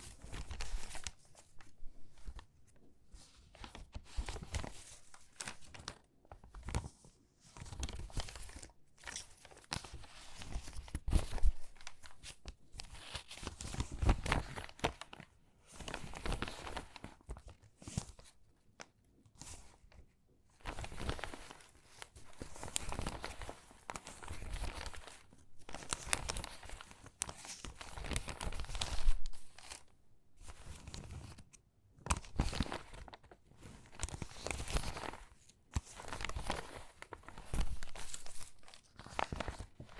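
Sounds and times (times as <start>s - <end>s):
magazine pages crinkling: 0.1s - 2.4s, 20.7s - 29.9s, 30.5s - 39.9s.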